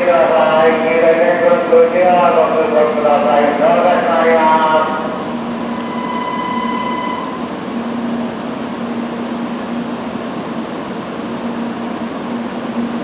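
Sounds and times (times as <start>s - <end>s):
train equipment humming: 0.0s - 13.0s
high electronic tone: 5.6s - 7.5s.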